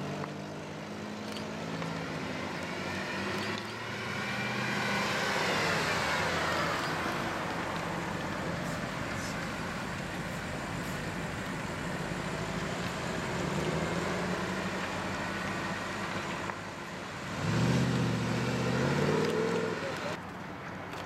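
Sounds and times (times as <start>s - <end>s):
tyre and road noise: 0.0s - 21.0s
car engine running: 5.6s - 17.2s.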